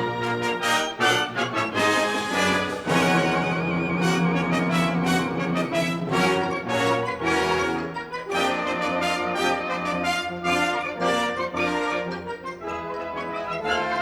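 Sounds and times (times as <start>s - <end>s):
wind band playing brass chords: 0.0s - 14.0s.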